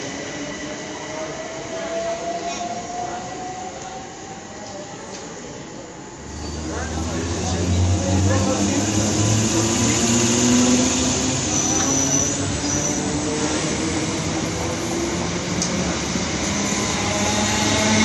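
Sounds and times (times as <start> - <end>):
train wheels rumbling on rails: 6.2 - 18.0.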